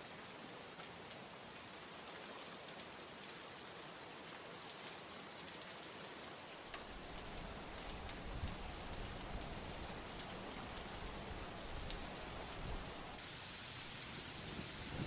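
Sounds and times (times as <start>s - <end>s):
faint steady rain: 0.0s - 15.0s.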